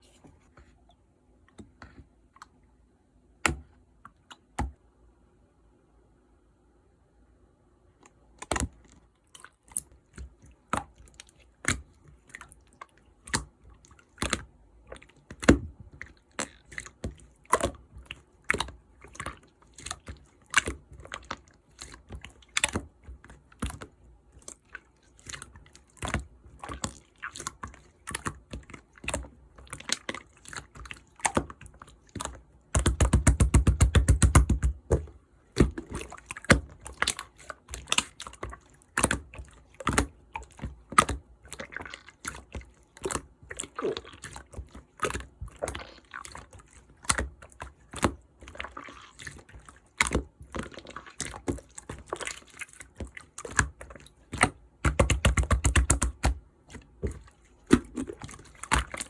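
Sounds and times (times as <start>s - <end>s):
slime clicking and popping: 32.1s - 40.1s, 54.4s - 56.4s.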